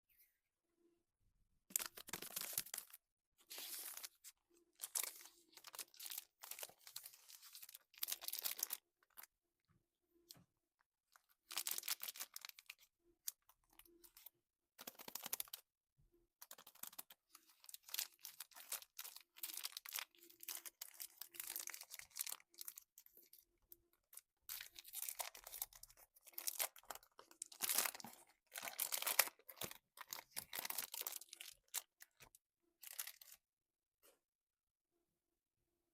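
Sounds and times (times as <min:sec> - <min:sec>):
plastic wrapper tearing and crinkling: 0:01.7 - 0:04.2, 0:04.8 - 0:09.2, 0:11.4 - 0:12.8, 0:16.4 - 0:23.3, 0:24.5 - 0:33.4.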